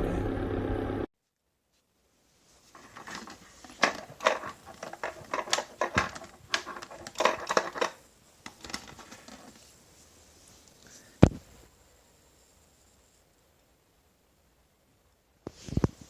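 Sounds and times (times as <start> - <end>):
rattling: 2.8 - 9.6.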